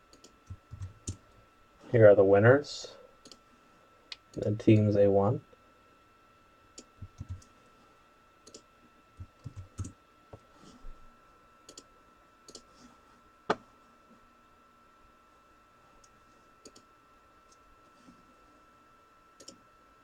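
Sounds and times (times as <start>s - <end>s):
faint high-pitched hum: 0.0s - 20.0s.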